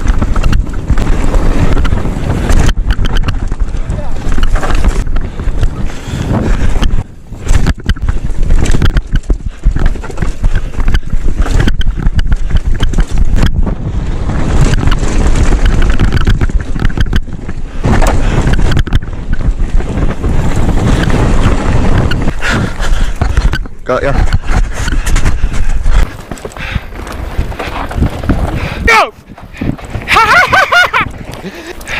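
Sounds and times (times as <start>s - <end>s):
bike rattling and clattering: 0.0s - 31.9s
wind buffeting microphone: 0.0s - 31.9s.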